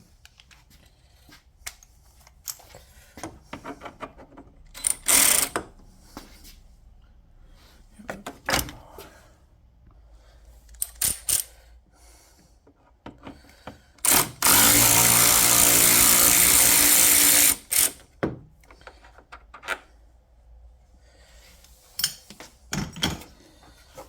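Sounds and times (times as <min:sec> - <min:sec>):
tools clicking and knocking: 0:01.6 - 0:05.8, 0:10.7 - 0:11.6, 0:12.7 - 0:19.9
power drill running: 0:05.0 - 0:05.6, 0:14.0 - 0:18.0.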